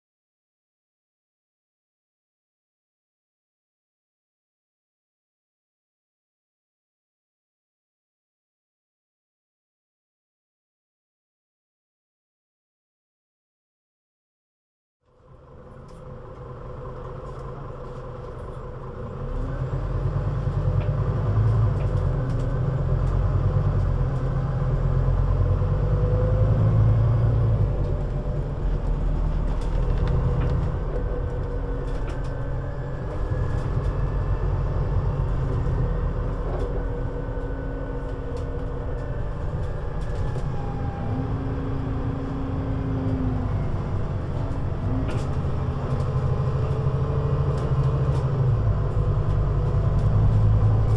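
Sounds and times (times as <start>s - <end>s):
bus engine rumble: 15.1s - 50.9s.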